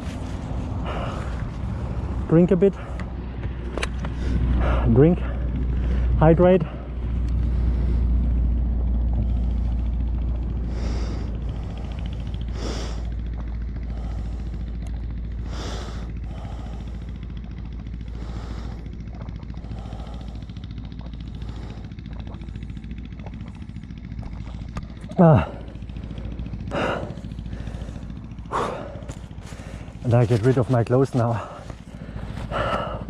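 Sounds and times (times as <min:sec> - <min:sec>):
low steady rumble: 0:00.0 - 0:33.0
man breathing hard: 0:00.0 - 0:33.0.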